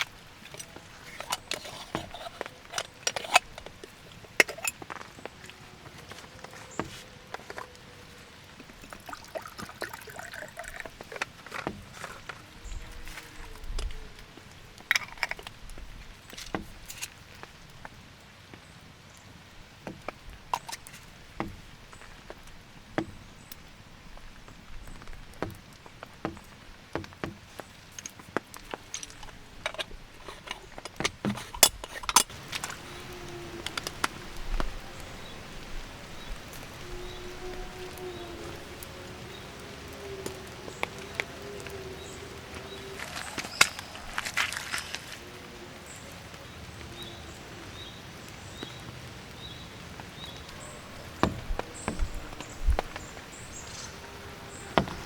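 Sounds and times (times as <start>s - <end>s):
hard objects clicking and clinking: 0.0s - 6.4s, 27.0s - 34.2s
rain hissing: 0.0s - 55.0s.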